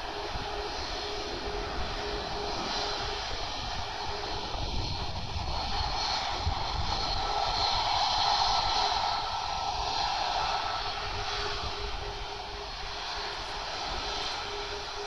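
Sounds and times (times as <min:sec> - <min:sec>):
jet engines at take-off power: 0:00.0 - 0:15.0.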